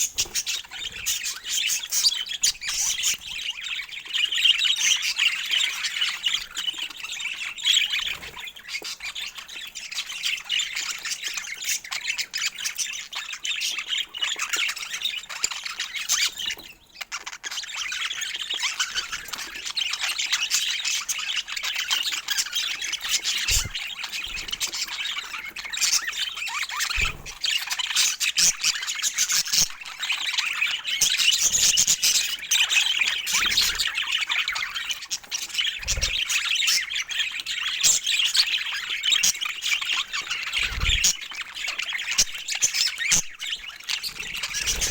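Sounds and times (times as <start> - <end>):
budgerigars chattering: 0.0 - 44.9.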